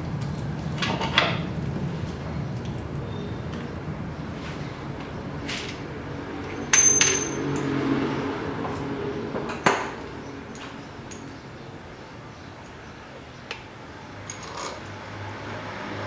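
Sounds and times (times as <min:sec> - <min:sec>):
metal tools clinking: 0:06.4 - 0:08.0, 0:09.5 - 0:11.4, 0:14.3 - 0:14.9.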